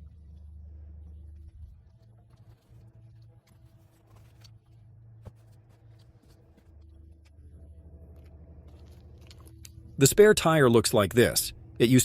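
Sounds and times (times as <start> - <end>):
low steady hum: 0.0 - 12.0
objects rustling and clicking: 1.4 - 7.6.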